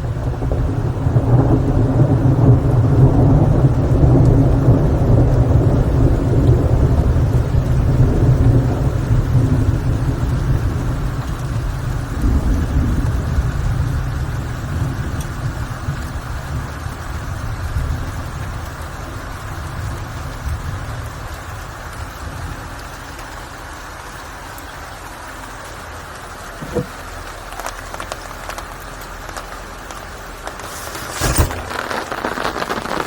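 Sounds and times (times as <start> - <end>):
thunder rumbling: 0.0 - 22.7, 30.1 - 33.0
steady rain: 0.0 - 33.0.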